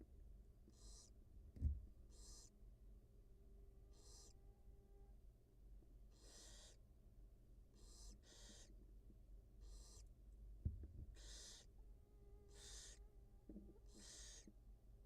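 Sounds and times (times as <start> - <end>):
owl hissing calls: 0.7 - 1.2, 2.1 - 2.5, 3.9 - 4.4, 6.1 - 6.8, 7.7 - 8.8, 9.6 - 10.1, 11.1 - 11.7, 12.5 - 13.1, 13.8 - 14.5.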